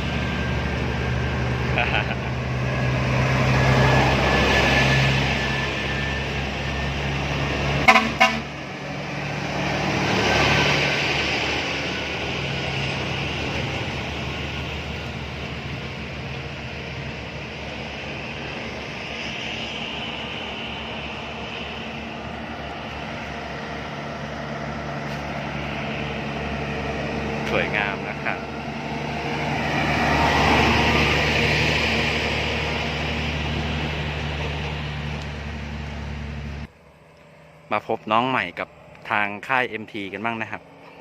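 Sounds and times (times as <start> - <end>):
heavy trucks running: 0.0 - 41.0
truck passing: 0.0 - 41.0
truck horn toots: 7.8 - 8.6.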